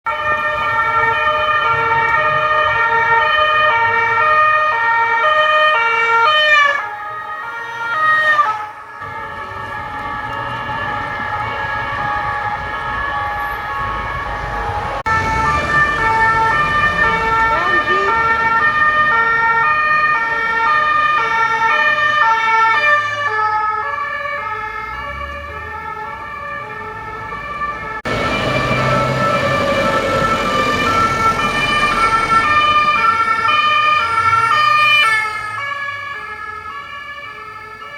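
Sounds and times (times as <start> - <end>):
two-tone police siren: 0.0 - 37.9.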